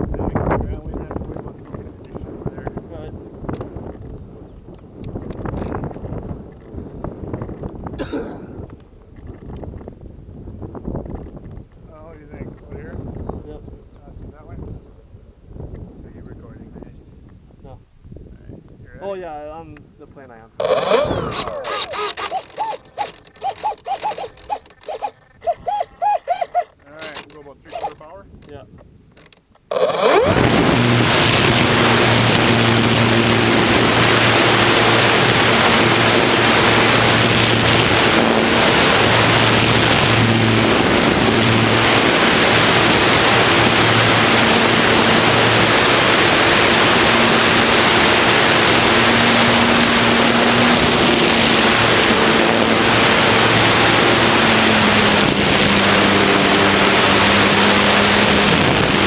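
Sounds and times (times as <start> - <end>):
wind and propeller rushing: 0.0 - 59.0
faint motor hum: 20.6 - 26.8.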